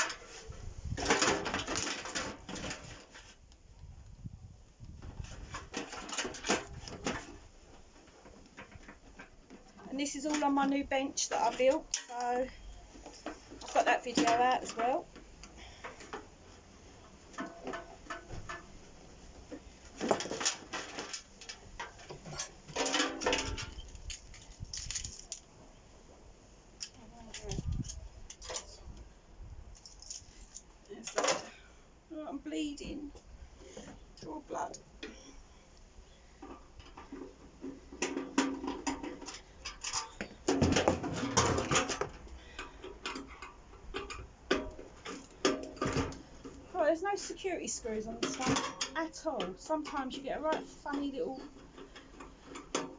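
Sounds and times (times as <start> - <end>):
hand tools dismantling metal and plastic: 0.0 - 3.5, 5.2 - 12.5, 13.1 - 16.3, 17.0 - 18.7, 19.5 - 25.5, 26.8 - 28.8, 29.7 - 31.6, 36.4 - 52.9.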